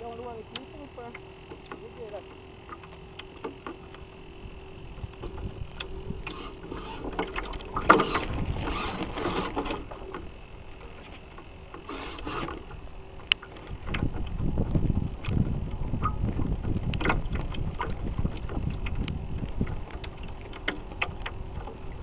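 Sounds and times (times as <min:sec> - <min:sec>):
faint steady hum: 0:00.0 - 0:22.0
water splashing against hull: 0:00.0 - 0:22.0
small clicks: 0:05.1 - 0:14.4.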